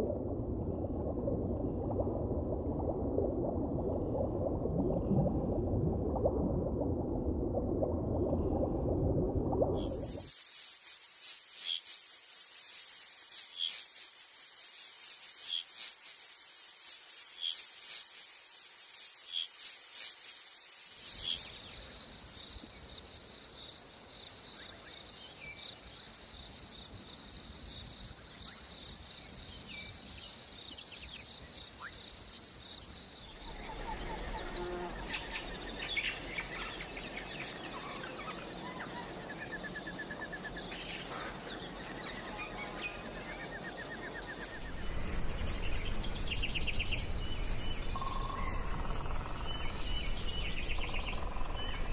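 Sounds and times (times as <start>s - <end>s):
insects chirping: 9.8s - 51.9s
high insect buzz: 9.9s - 21.5s, 34.3s - 35.2s.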